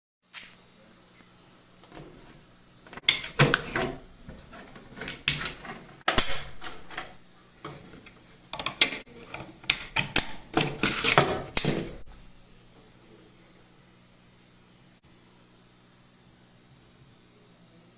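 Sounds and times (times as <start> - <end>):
hard parts clicking and clattering: 2.9 - 12.1.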